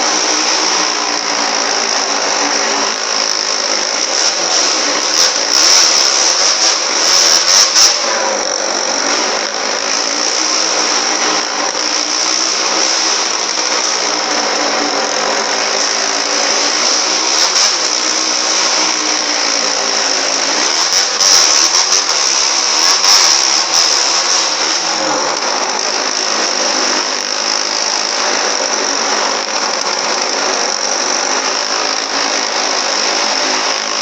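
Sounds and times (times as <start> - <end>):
motorcycle engine running hard: 0.0 - 34.0.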